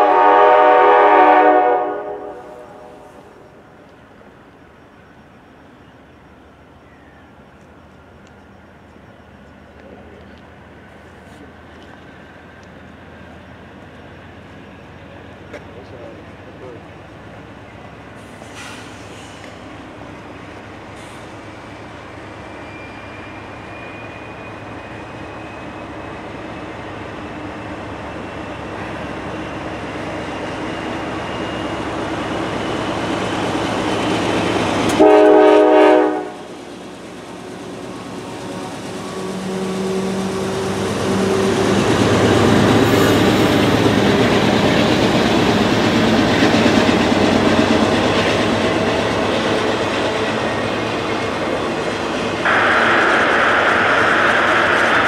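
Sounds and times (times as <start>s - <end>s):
locomotive horn blast: 0.0s - 3.5s, 34.9s - 36.5s
locomotive engine drone: 0.0s - 55.0s
train wheels rolling on rails: 2.3s - 55.0s.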